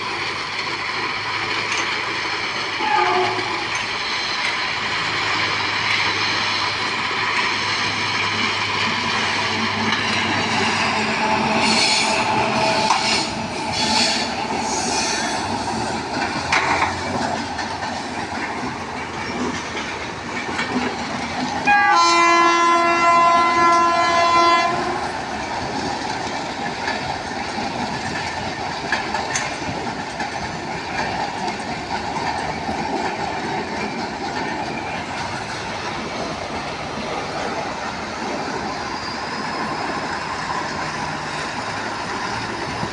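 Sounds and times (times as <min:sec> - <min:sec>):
train wheels clattering over rails: 0:00.0 - 0:42.9
train horn: 0:02.8 - 0:03.6, 0:21.6 - 0:25.1.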